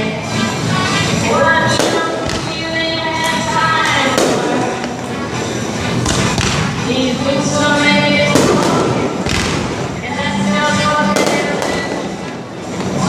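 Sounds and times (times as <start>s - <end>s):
music over loudspeakers: 0.0s - 13.0s
fireworks booming: 1.8s - 2.6s, 4.0s - 5.1s, 8.3s - 9.9s, 11.1s - 12.5s.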